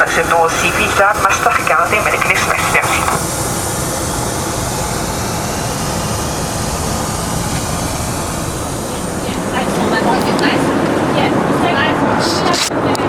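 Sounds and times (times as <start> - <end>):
airplane cabin noise: 0.0 - 13.0.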